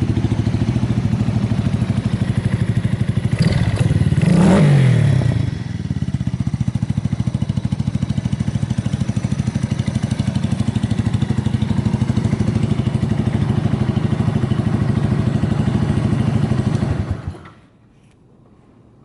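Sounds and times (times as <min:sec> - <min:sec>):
motorcycle engine idling: 0:00.0 - 0:17.7.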